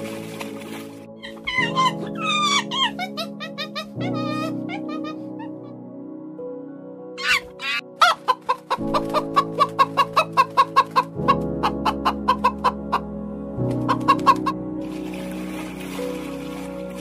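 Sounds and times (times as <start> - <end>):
background music: 0.0 - 17.0
hen clucking: 7.2 - 13.1, 13.8 - 14.6.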